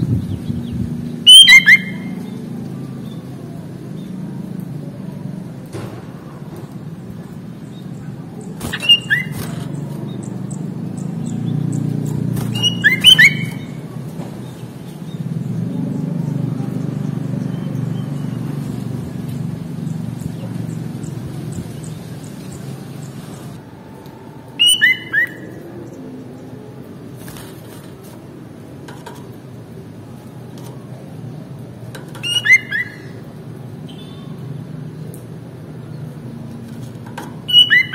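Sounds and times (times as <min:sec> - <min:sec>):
bulbul whistled notes: 0:01.3 - 0:02.1.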